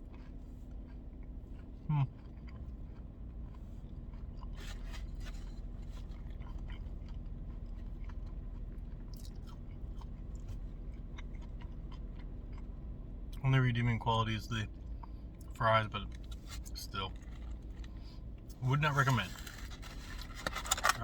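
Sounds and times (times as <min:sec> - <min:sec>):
person chewing food: 0:00.0 - 0:13.4, 0:14.7 - 0:18.6
crisp crunches: 0:04.1 - 0:10.6, 0:18.9 - 0:21.0.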